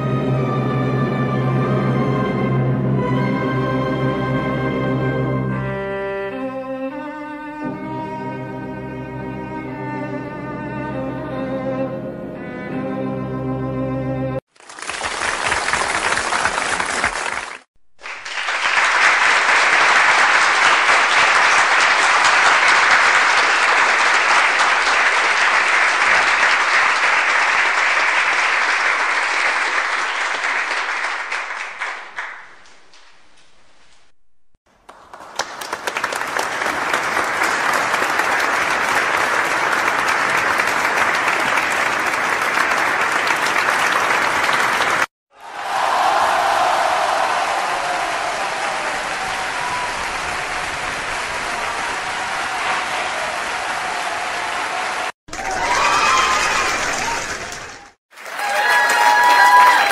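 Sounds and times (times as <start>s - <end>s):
crowd applause: 14.5s - 33.1s, 34.7s - 59.9s.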